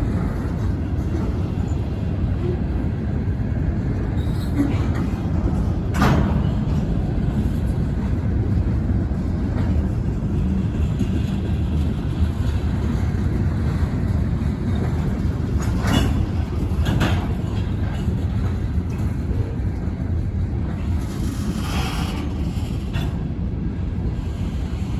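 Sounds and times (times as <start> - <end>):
freight train rumbling by: 0.0 - 24.9.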